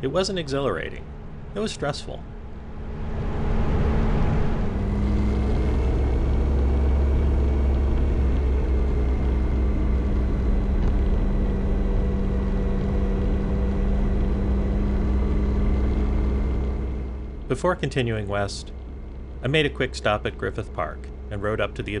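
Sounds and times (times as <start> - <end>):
steady rushing noise: 0.0 - 17.5
motorcycle engine running: 0.7 - 22.0.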